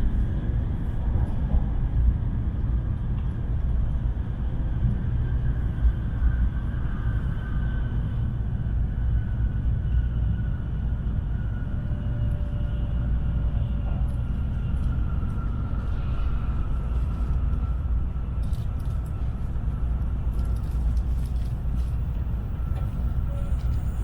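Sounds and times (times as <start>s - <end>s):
train cabin rumble: 11.8s - 24.0s.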